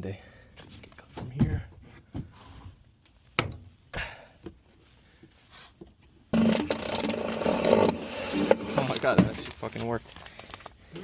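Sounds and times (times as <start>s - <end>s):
power tool cutting with whine: 6.4s - 9.2s.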